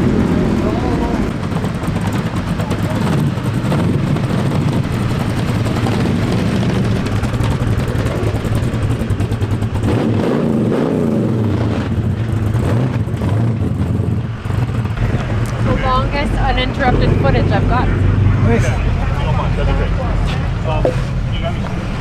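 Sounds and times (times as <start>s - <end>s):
traffic passing: 0.0s - 22.0s
vehicle engines droning: 0.0s - 22.0s
wavering high engine note: 14.9s - 22.0s.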